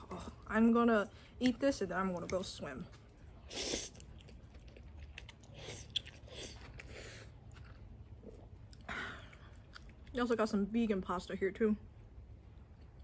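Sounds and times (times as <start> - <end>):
soft wet chewing: 1.1 - 10.4, 11.9 - 13.0
person slurping noodles: 3.5 - 4.1.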